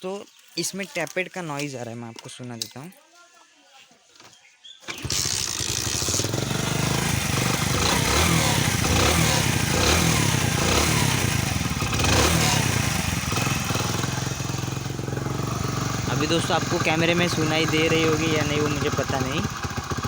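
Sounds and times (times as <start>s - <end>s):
engine tappet noise: 4.8s - 20.0s
motorcycle engine running: 4.9s - 20.0s.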